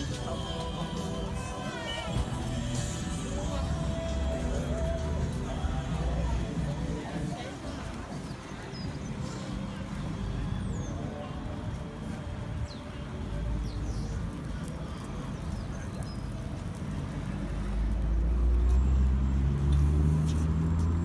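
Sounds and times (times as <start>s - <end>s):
vehicle engine rumble: 0.0s - 21.0s.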